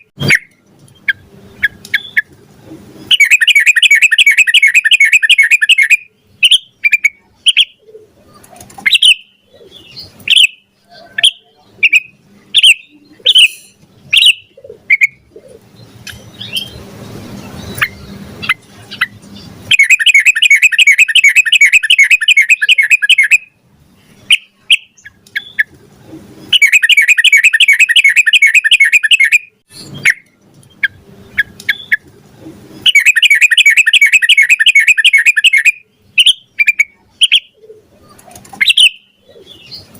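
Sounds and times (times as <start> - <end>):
bulbul chirps: 19.7 - 23.5, 26.5 - 32.0, 32.8 - 37.6
bulbul fast trills: 26.5 - 30.2.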